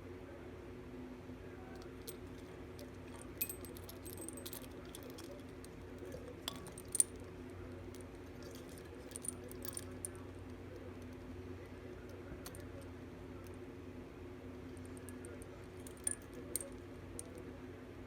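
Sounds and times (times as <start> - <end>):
steady low hum: 0.0 - 18.0
small hard objects clinking: 1.8 - 7.2, 7.9 - 10.2.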